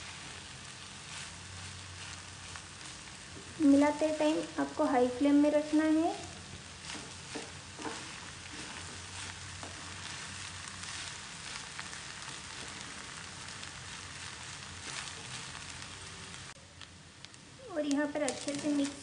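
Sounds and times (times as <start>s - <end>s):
rice sizzling in a pan: 0.0s - 19.0s
spatula scraping and knocking pan: 6.8s - 15.7s.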